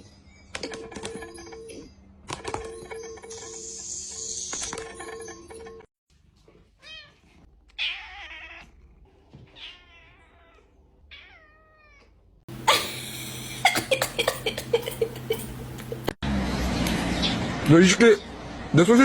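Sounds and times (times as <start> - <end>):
cat meowing: 7.8 - 8.7, 9.5 - 12.1.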